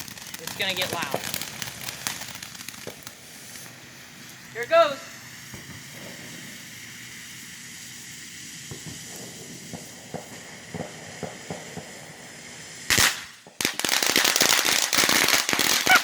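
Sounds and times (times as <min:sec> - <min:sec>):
small pops: 0:00.0 - 0:03.8
dense firework crackling: 0:00.0 - 0:16.0
firework hissing: 0:00.0 - 0:16.0
loud firework bang: 0:05.5 - 0:07.0, 0:08.6 - 0:12.3.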